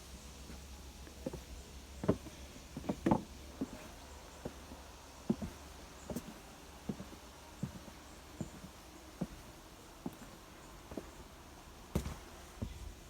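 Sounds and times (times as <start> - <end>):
footsteps on forest floor: 11.9 - 12.9.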